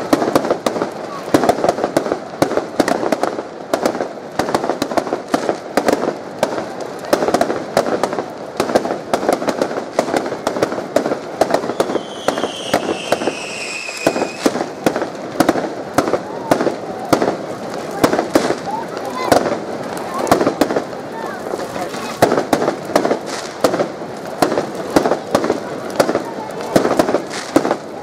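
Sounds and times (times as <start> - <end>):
fireworks cracking and popping: 0.0 - 28.0
falling whistle: 11.8 - 14.4.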